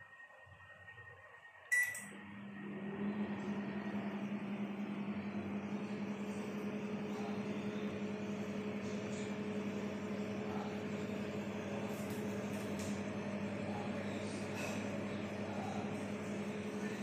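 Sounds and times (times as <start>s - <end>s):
microwave running hum: 0.0s - 17.0s
microwave click: 1.7s - 2.2s
microwave beep: 1.7s - 9.3s.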